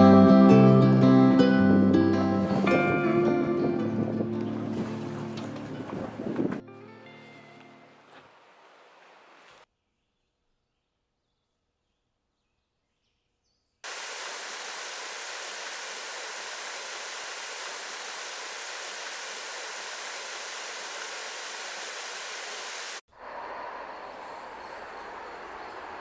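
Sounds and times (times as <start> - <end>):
steady rushing noise: 13.9 - 26.0.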